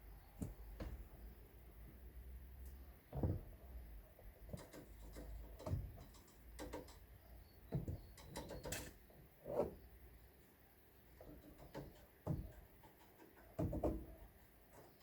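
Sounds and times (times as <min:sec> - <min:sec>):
irregular knocks and clicks: 0:00.4 - 0:01.2, 0:03.1 - 0:03.6, 0:04.4 - 0:09.0, 0:11.2 - 0:15.0.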